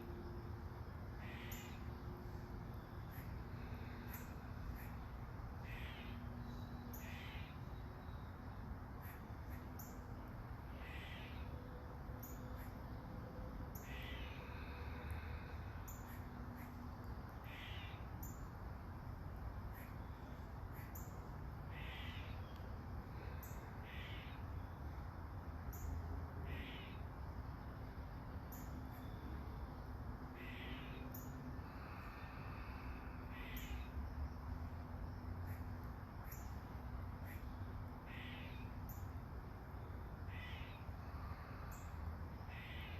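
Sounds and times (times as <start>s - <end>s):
bird calling: 1.2s - 1.9s, 3.0s - 7.7s, 21.7s - 22.6s, 30.4s - 32.2s, 33.3s - 33.9s, 37.2s - 39.0s, 40.3s - 41.9s, 42.5s - 42.9s.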